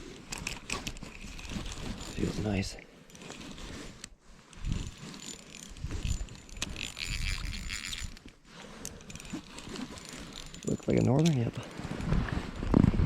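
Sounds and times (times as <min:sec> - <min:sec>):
fishing reel cranking: 0:04.5 - 0:12.1.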